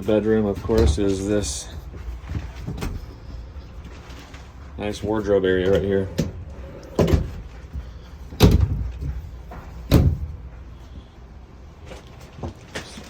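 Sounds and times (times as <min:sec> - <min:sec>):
wardrobe doors knocking and bumping: 0:05.7 - 0:10.5.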